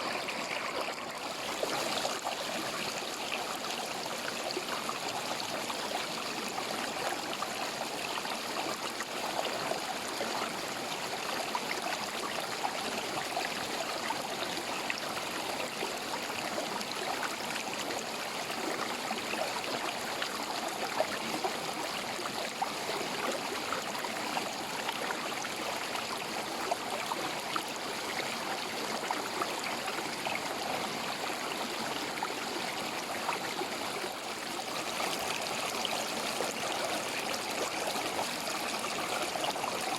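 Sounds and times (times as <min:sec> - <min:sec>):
river water running over rocks: 0:00.0 - 0:07.9, 0:23.5 - 0:39.9.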